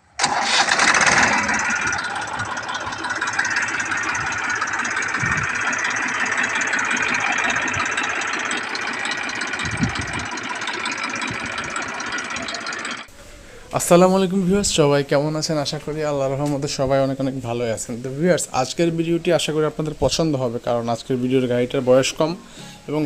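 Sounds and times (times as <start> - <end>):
tractor diesel engine clattering: 0.0 - 13.1.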